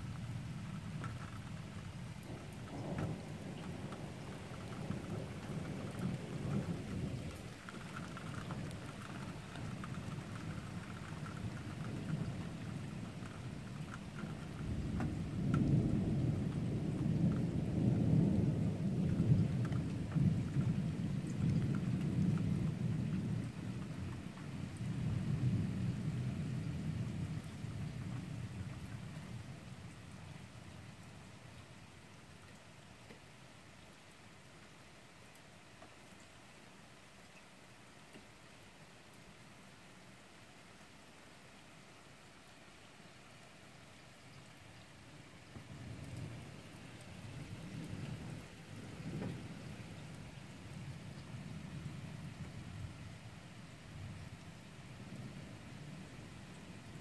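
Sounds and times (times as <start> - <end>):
heavy rain falling: 0.0 - 57.0
rolling thunder: 1.5 - 29.2, 45.6 - 53.0.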